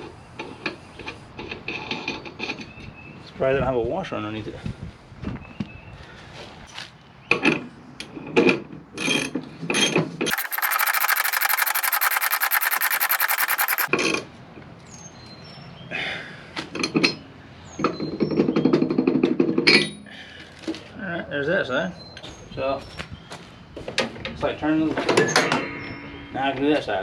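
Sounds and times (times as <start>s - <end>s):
ratchet wrench clicking: 10.3s - 13.9s.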